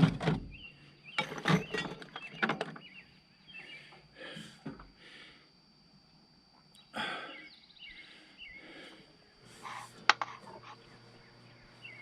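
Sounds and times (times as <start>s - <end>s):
short hissing noises: 9.4s - 10.6s.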